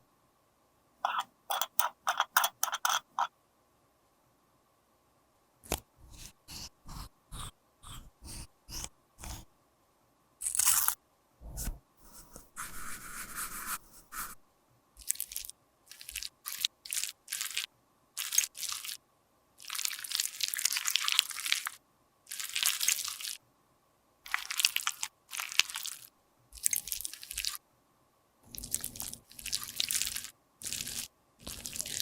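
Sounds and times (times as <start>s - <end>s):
crunching and scraping of makeup: 1.1s - 3.3s, 5.7s - 9.5s, 10.4s - 14.4s.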